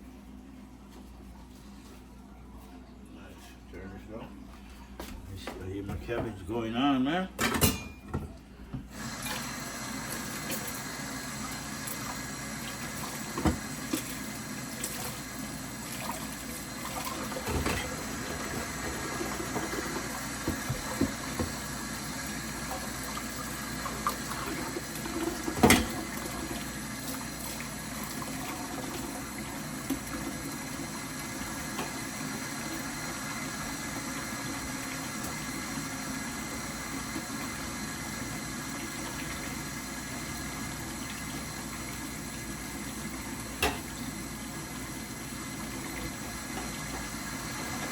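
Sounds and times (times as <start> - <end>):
kitchen utensils clinking: 7.4 - 8.4, 25.5 - 26.1.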